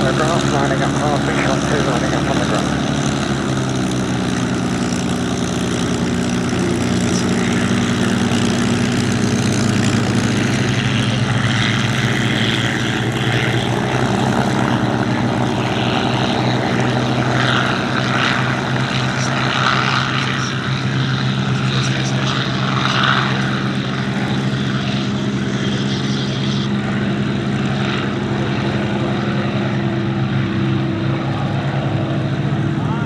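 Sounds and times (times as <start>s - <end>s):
piston aero engine droning: 0.0s - 33.0s.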